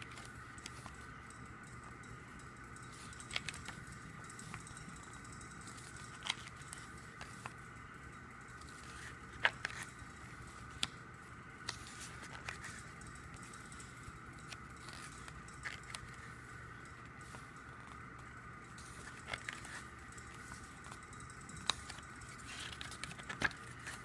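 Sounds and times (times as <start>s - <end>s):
faint hum: 0.0s - 24.0s
photobook pages turning: 2.9s - 4.6s, 5.7s - 7.6s, 8.6s - 10.9s, 11.6s - 18.0s, 18.8s - 21.0s, 21.6s - 24.0s.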